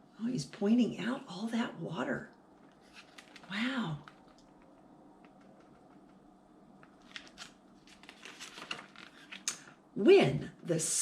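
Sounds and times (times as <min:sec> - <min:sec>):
paper pages rustling and turning: 0:02.6 - 0:06.2, 0:06.8 - 0:09.7.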